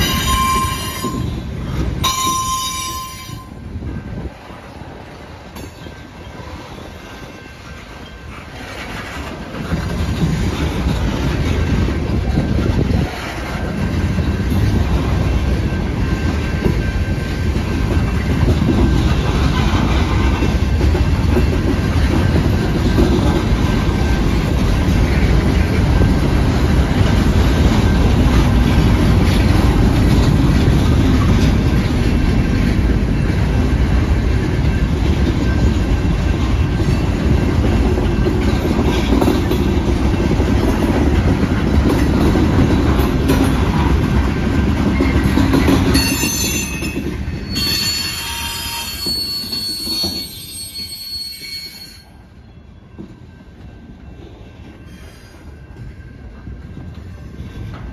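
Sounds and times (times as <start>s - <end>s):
high wheel squeals: 0.0s - 1.4s, 46.0s - 52.8s
steel wheels clattering on rails: 0.0s - 52.2s
freight train rumbling past: 0.0s - 57.9s.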